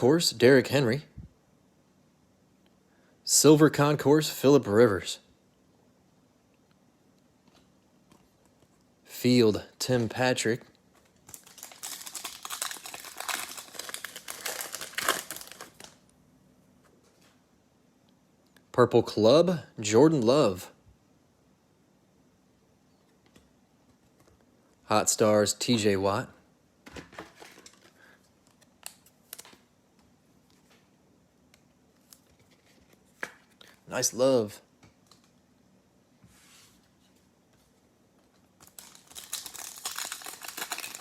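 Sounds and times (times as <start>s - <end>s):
foil wrapper crinkling: 11.0s - 16.0s, 38.6s - 41.0s.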